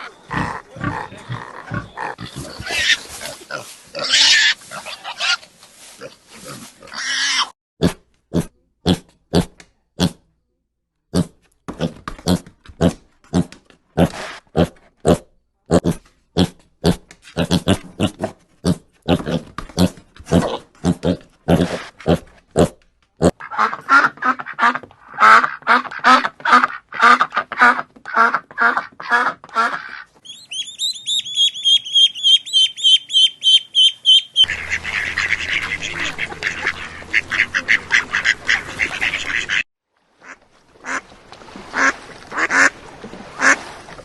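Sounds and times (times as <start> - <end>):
animal grunting: 0.0 - 5.3, 11.1 - 23.4.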